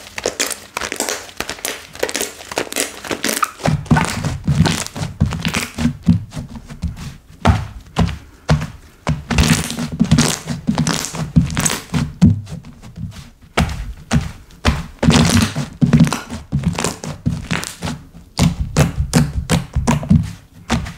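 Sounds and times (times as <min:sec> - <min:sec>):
slime clicking and popping: 0:00.0 - 0:04.9.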